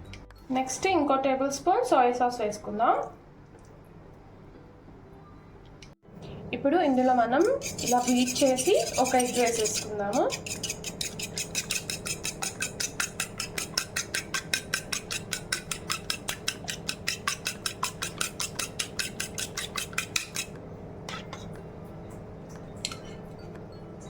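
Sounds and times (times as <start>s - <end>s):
egg beaten in a bowl: 7.4s - 20.6s.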